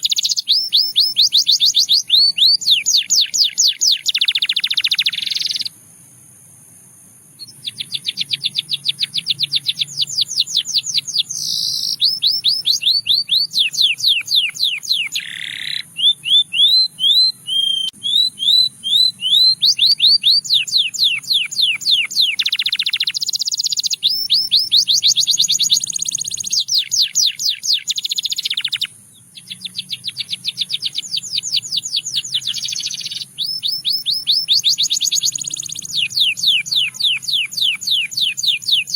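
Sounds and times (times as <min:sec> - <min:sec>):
canary singing trills: 0:00.0 - 0:05.8, 0:07.4 - 0:38.9.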